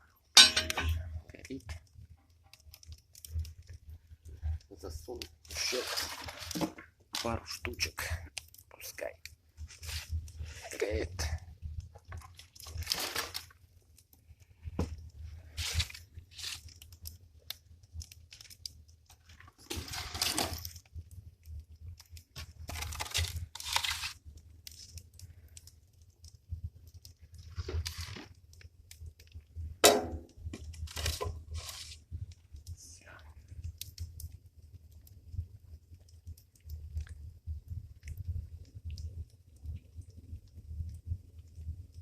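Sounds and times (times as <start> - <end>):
wood crunching and scraping: 5.4 - 7.6, 12.1 - 13.6, 15.4 - 16.9, 19.1 - 20.8, 22.4 - 24.9, 27.5 - 28.4, 30.6 - 32.0.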